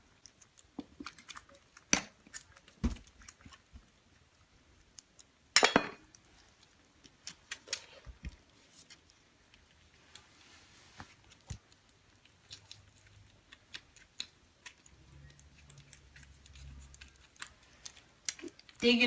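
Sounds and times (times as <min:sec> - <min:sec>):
kittens eating clicks and slurps: 0:00.0 - 0:19.0
bowl clattering: 0:05.6 - 0:06.1.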